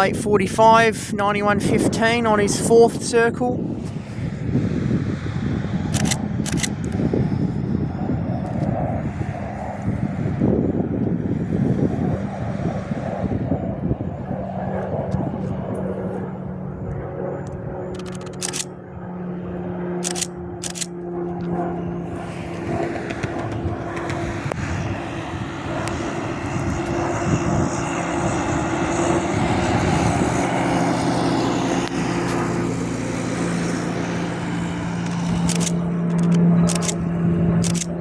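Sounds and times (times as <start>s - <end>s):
turboprop plane flying past: 0.0s - 38.0s
camera shutter clicks: 5.9s - 7.0s, 18.0s - 18.7s, 20.0s - 20.9s, 35.1s - 37.0s, 37.6s - 37.9s.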